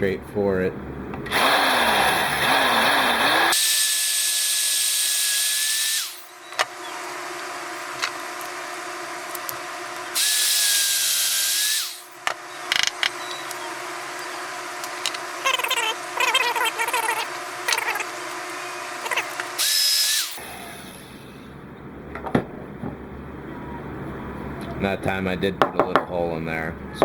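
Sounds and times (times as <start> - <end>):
power drill whining: 1.3 - 21.5.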